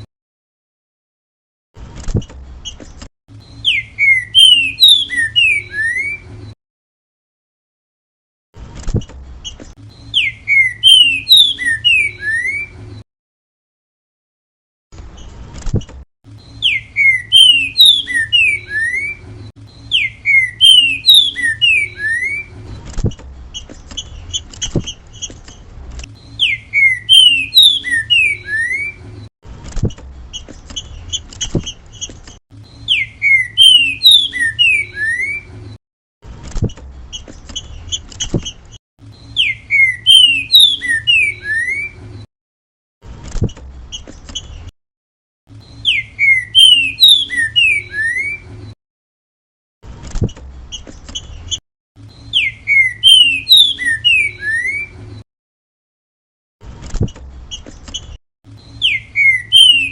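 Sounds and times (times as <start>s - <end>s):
bird whistling song: 3.4s - 6.3s, 9.4s - 12.8s, 16.4s - 22.6s, 26.2s - 29.1s, 32.6s - 35.6s, 39.1s - 42.0s, 45.6s - 48.5s, 50.7s - 55.0s, 57.5s - 59.9s.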